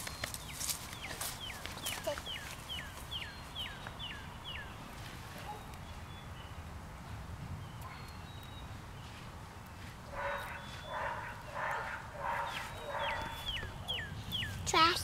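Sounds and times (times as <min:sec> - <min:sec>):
bird whistling: 0:12.6 - 0:14.6.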